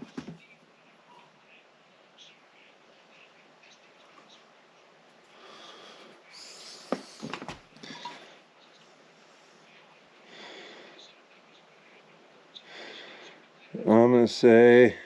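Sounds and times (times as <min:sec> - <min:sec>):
soft breathing: 0:05.2 - 0:13.7.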